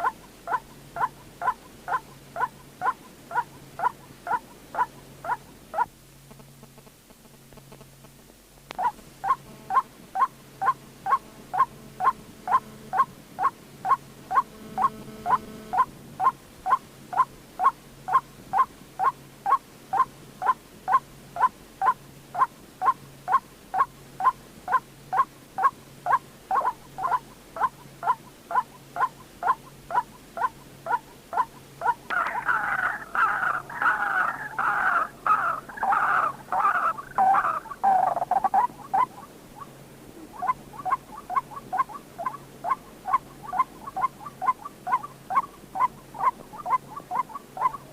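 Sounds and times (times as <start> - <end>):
waterhen calling sharp notes: 25.6 - 39.7.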